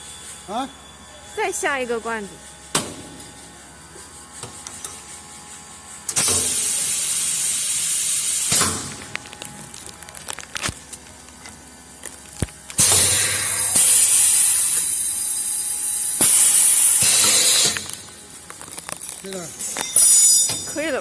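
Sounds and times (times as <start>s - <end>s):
gas filling machine hiss: 6.0s - 9.1s, 12.8s - 18.2s.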